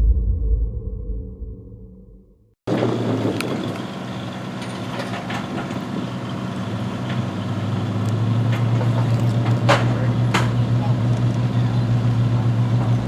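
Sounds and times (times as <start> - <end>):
car engine idling: 3.3 - 13.0.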